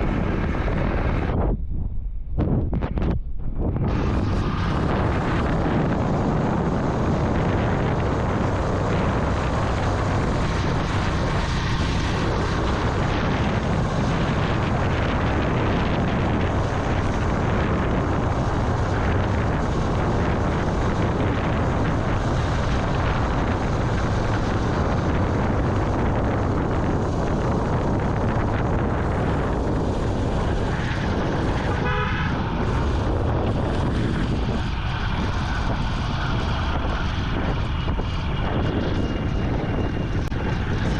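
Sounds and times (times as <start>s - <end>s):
wind and road noise: 0.0s - 40.9s
horn toot: 31.7s - 32.4s.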